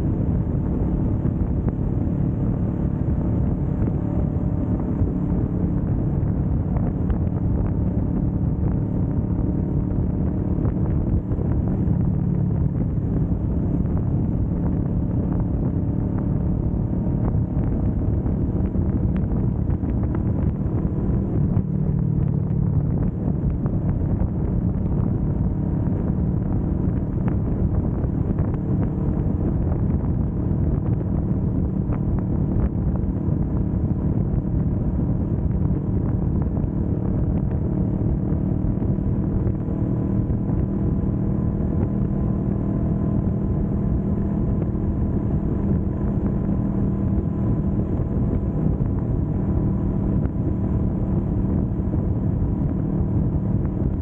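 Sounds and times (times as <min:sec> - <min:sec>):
motorcycle engine cruising: 0:00.0 - 0:54.0
wind rushing over microphone: 0:00.0 - 0:54.0.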